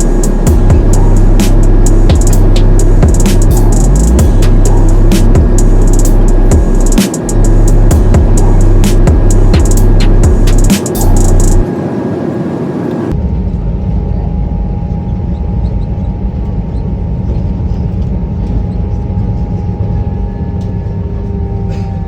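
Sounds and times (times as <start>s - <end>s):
airliner cabin engine rumble: 0.0s - 22.0s.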